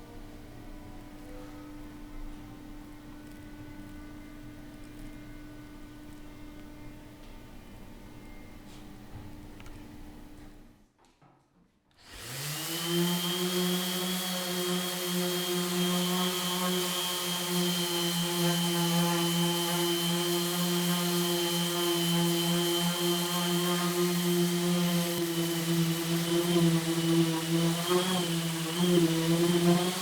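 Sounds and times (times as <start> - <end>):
power tool motor humming: 12.0 - 30.0.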